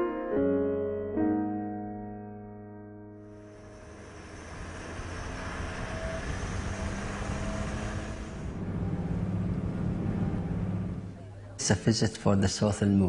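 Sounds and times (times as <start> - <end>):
road noise: 3.2 - 11.6
vehicle engine hum: 3.2 - 11.6.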